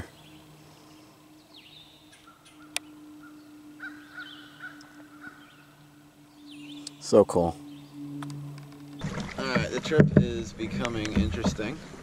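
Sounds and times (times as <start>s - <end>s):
faint wild bird calls: 0.0s - 9.3s
low steady hum: 0.0s - 12.0s.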